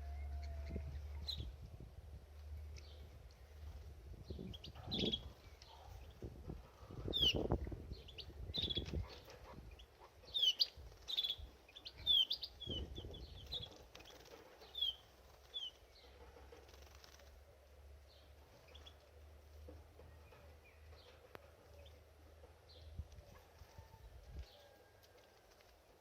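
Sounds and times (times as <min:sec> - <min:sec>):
canary chirping: 0:07.1 - 0:17.0
wings fluttering: 0:10.6 - 0:11.5, 0:12.7 - 0:17.6, 0:23.0 - 0:26.0.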